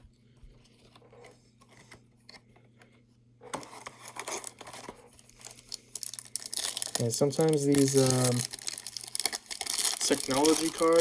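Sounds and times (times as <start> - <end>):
cards being handled: 3.6 - 11.0
plastic wrapper crinkling and tearing: 3.6 - 11.0.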